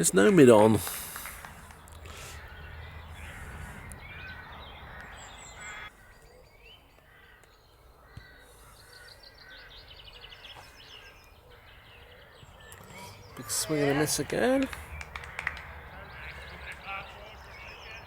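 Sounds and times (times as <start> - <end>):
birds calling: 0.0 - 18.0
faint outdoor background noise: 0.0 - 18.0
crow-like caws: 1.2 - 6.2, 7.0 - 13.4.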